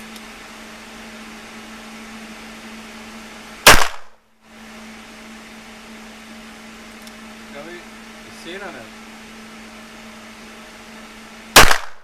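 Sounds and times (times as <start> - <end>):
steady low hum: 0.0 - 12.0
pistol shot: 3.6 - 4.2, 11.6 - 12.0.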